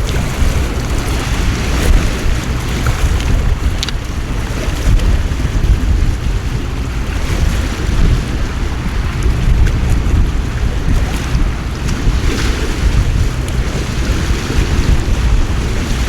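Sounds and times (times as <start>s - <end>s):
wind buffeting microphone: 0.0s - 16.0s
splashing ticks: 2.7s - 4.1s.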